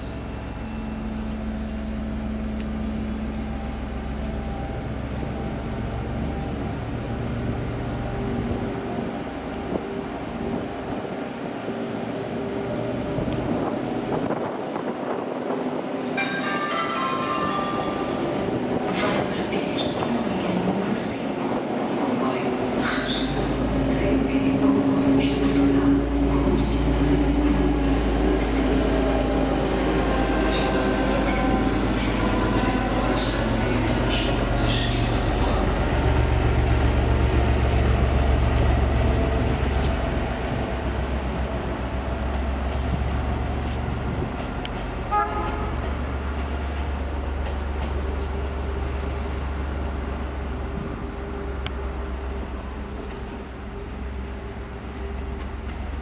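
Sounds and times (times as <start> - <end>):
train rumble with low hum: 0.0 - 56.0
train horn toot: 45.1 - 46.0.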